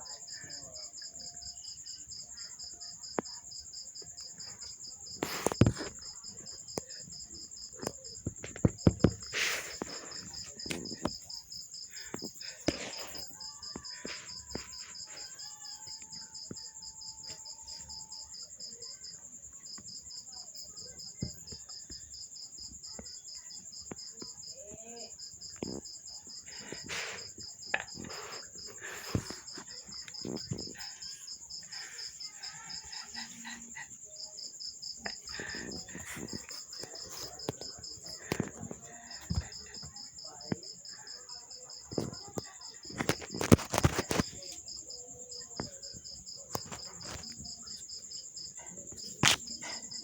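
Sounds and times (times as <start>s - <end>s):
insects chirping: 0.0s - 50.0s.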